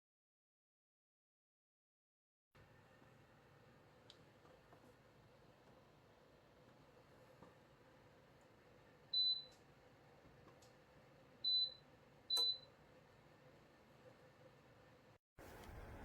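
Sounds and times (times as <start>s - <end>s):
heater control panel beeps: 9.1s - 9.6s, 11.4s - 12.8s.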